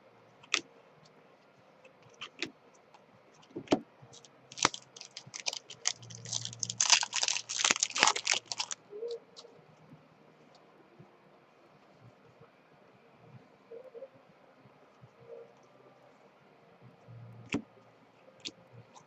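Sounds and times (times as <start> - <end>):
trading cards flipped through: 4.5 - 8.8.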